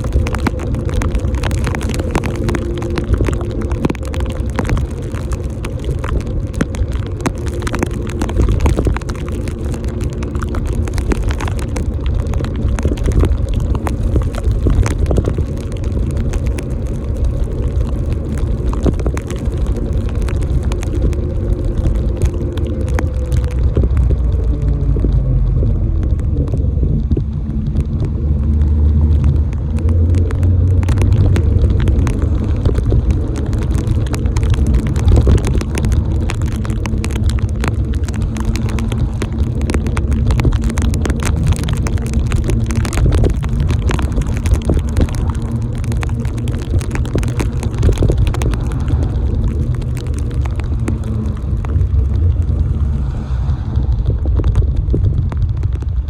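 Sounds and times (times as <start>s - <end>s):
sharp ticks of rain: 0.0s - 56.0s
vehicle engine hum: 0.0s - 56.0s.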